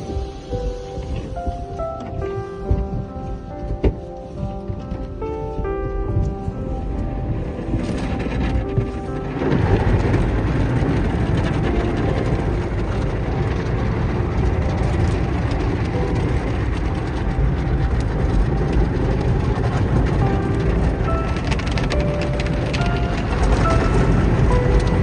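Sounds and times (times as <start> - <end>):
car wash machinery rumbling: 0.0 - 25.0.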